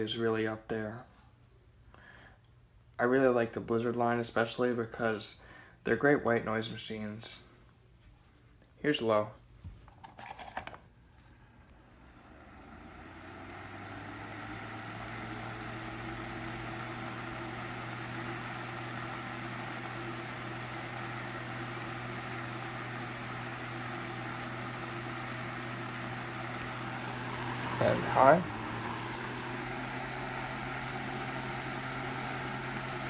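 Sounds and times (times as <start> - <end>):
desk fan motor running: 11.7 - 33.0.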